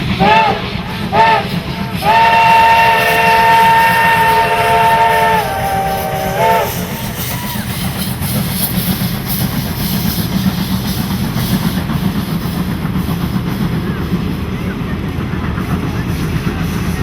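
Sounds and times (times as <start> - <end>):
train running rumble: 0.0 - 17.0
steam whistle chord: 0.2 - 7.6.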